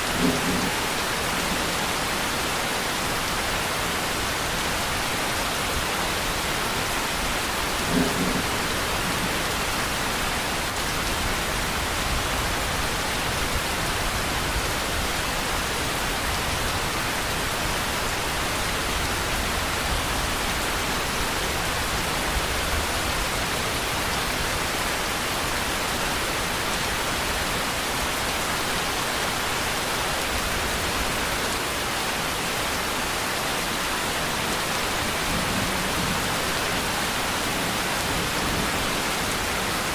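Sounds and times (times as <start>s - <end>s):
steady rain hissing: 0.0s - 39.9s
distant thunder rumble: 0.1s - 1.6s, 7.8s - 10.1s.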